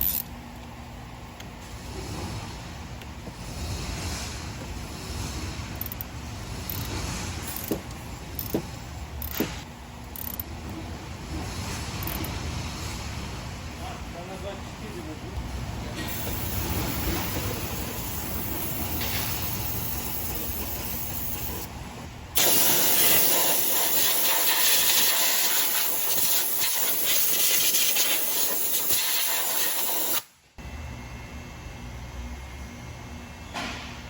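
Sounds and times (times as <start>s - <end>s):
loud steady hiss: 22.4s - 30.3s.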